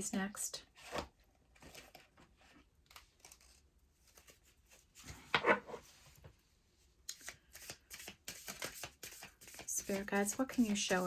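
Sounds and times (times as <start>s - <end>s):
cards being shuffled: 7.1s - 9.9s.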